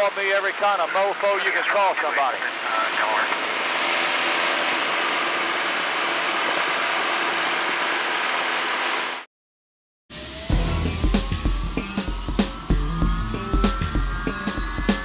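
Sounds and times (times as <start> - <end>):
airplane engine drone: 0.0 - 9.3, 10.1 - 15.0
music: 10.2 - 15.0.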